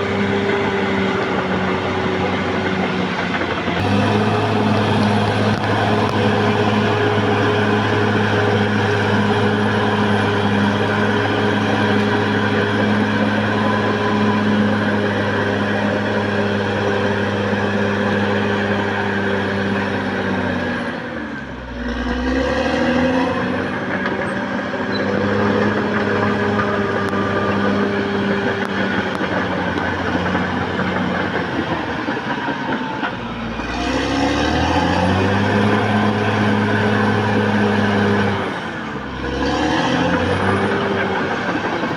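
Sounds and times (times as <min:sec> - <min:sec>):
bulldozer diesel engine revving: 0:00.0 - 0:41.9.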